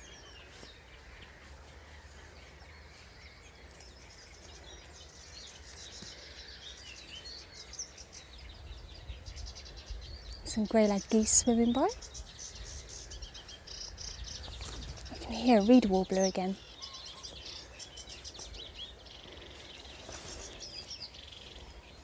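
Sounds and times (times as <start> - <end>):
birdsong: 0.0 - 22.0
warbler chattering song: 0.0 - 22.0
wind rumble on microphone: 8.1 - 16.1.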